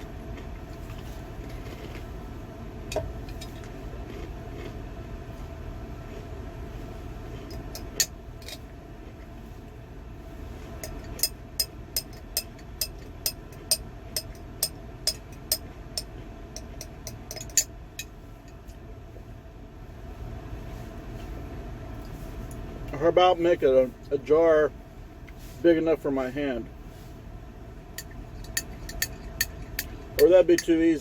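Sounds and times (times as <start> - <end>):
steady vehicle hum: 0.0 - 31.0
spoon clinking on glass jar: 28.0 - 30.7.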